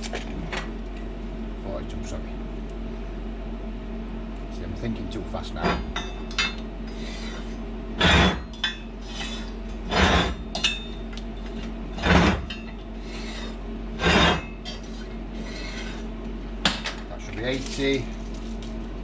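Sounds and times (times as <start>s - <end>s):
steady low hum: 0.0s - 19.0s
file rasping on steel: 6.9s - 10.4s, 13.0s - 14.5s.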